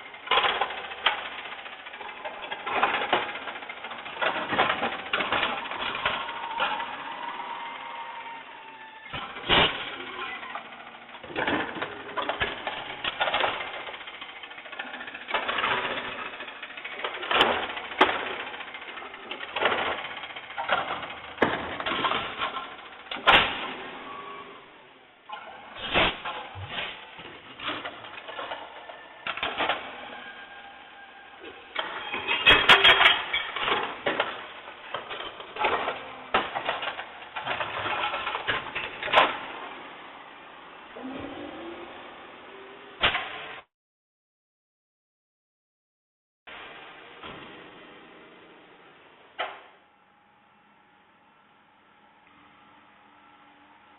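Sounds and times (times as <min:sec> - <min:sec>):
loud rattles: 0:00.0 - 0:07.4, 0:09.1 - 0:23.8
garbage truck metallic clattering: 0:00.0 - 0:08.4, 0:09.2 - 0:24.4, 0:25.3 - 0:39.7.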